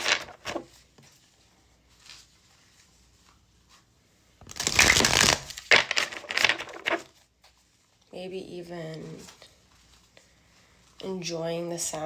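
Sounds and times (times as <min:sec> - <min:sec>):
cards being shuffled: 0:00.0 - 0:00.8, 0:04.4 - 0:07.6.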